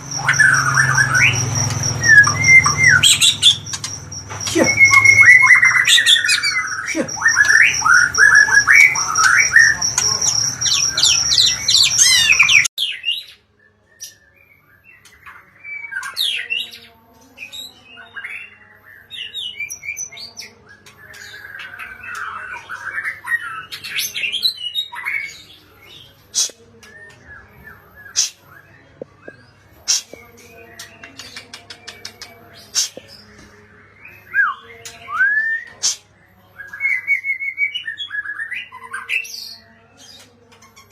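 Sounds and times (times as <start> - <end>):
bird singing whistles and trills: 0.0 - 16.6, 34.0 - 36.0.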